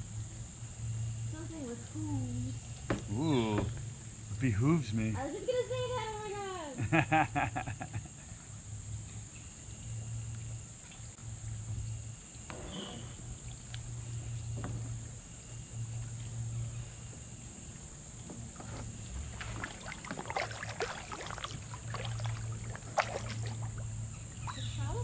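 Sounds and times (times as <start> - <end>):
insects chirping: 0.0 - 25.0
paddle strokes in water: 18.1 - 25.0
knocks and splashes: 18.3 - 25.0.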